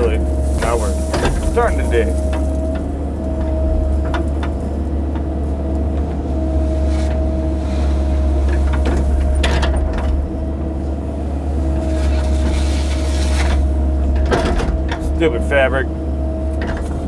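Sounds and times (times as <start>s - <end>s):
excavator diesel rumble: 0.0s - 17.0s
hydraulic whine: 6.4s - 15.0s.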